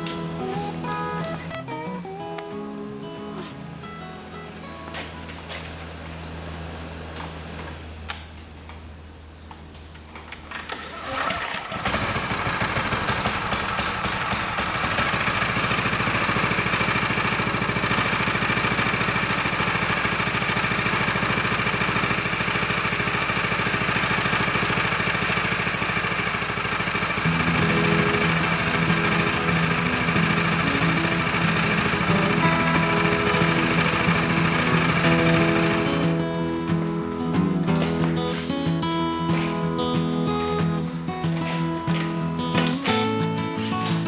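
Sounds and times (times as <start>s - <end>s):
cultivator engine running: 10.3s - 44.0s.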